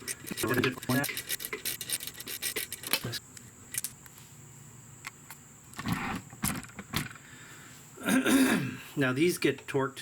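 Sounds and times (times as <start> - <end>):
hand tools clicking on metal: 0.0 - 3.2
tools clattering: 0.0 - 3.2.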